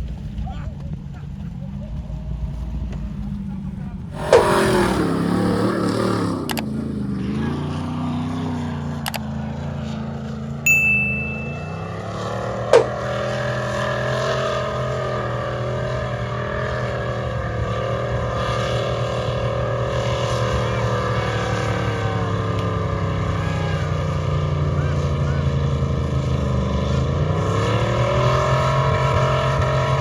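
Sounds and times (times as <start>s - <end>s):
engine running with even hum: 0.0s - 30.0s
short ringing ding: 10.7s - 12.1s.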